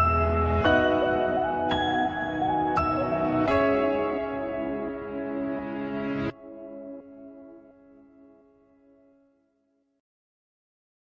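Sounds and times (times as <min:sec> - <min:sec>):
slow ambient held chords: 0:00.0 - 0:08.8.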